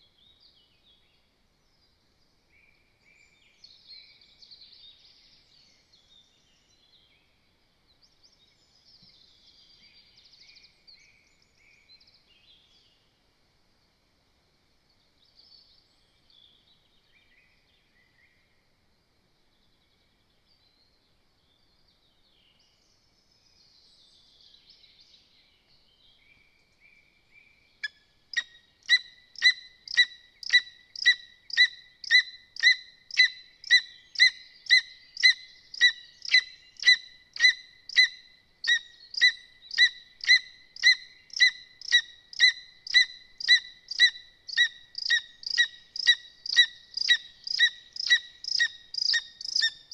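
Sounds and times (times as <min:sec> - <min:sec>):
faint small bird chirps: 0:19.4 - 0:49.9
eagle calling: 0:28.4 - 0:49.9.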